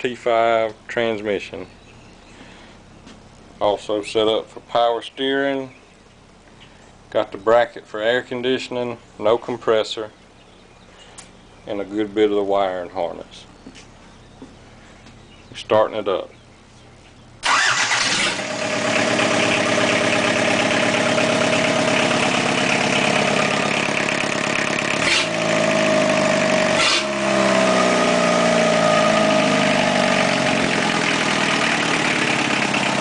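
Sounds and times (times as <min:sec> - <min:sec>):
diesel engine starting and running: 0:17.4 - 0:33.0.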